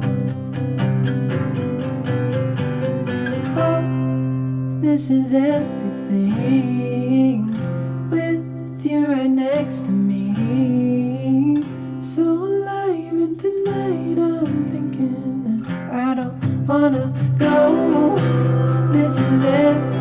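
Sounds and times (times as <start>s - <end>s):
strummed acoustic guitar: 0.0s - 20.0s
person singing: 3.5s - 4.1s, 4.8s - 20.0s.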